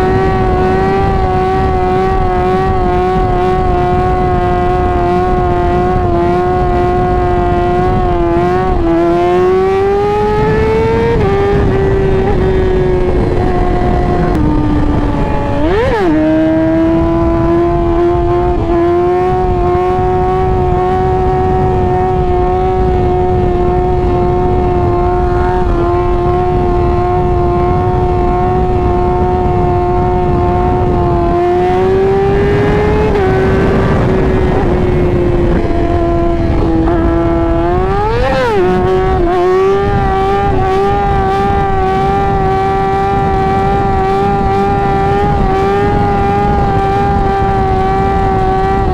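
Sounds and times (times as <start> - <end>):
motorcycle engine revving: 0.0 - 48.9
wind rush on microphone: 0.0 - 48.9.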